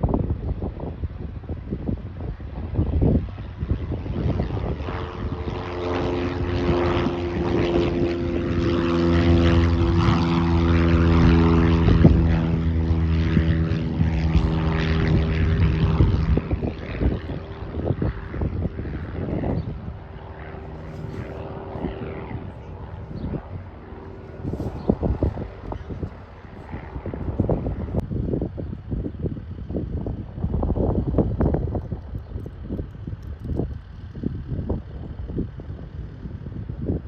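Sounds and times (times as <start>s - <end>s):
propeller airplane passing by: 0.0s - 37.0s.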